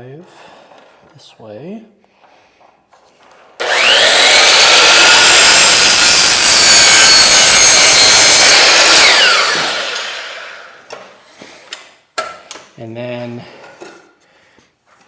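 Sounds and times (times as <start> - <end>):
miter saw cutting wood: 3.6 - 10.9.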